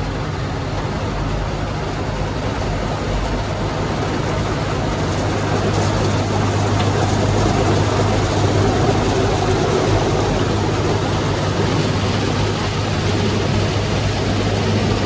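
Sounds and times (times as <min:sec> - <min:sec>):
car wash machinery rushing: 0:00.0 - 0:15.0
low machinery hum: 0:00.0 - 0:15.0.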